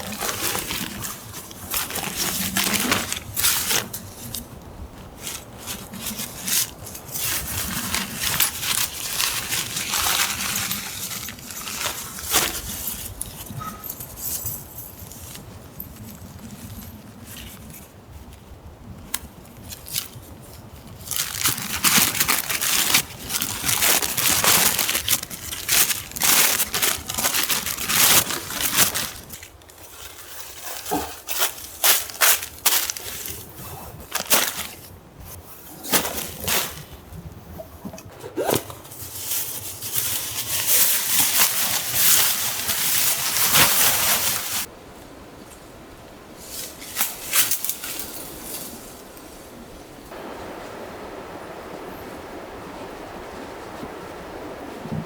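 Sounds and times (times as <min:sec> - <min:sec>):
dry forest litter crunching: 0:00.0 - 0:37.2, 0:38.1 - 0:44.8.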